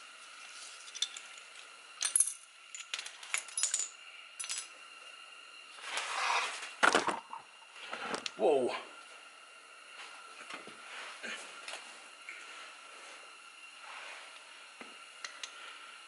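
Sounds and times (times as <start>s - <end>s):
metal tools clinking: 0.8s - 4.7s
scraping rustle: 5.8s - 6.8s.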